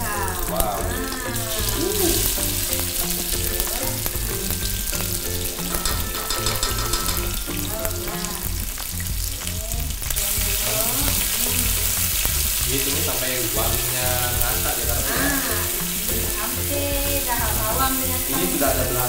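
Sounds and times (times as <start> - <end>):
spice paste sizzling in oil: 0.0 - 19.0.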